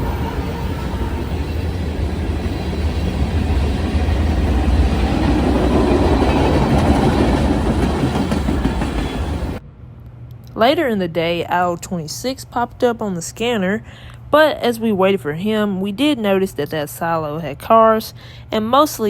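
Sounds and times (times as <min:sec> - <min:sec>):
wheels clacking over rail joints: 0:00.0 - 0:09.6
freight train rumbling past: 0:00.0 - 0:09.7.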